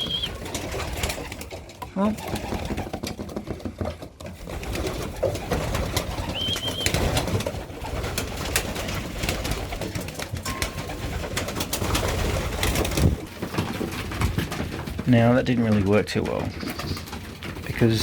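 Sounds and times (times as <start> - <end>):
pigeons cooing: 0.0 - 1.5, 4.4 - 10.0
high chirp: 6.3 - 7.0.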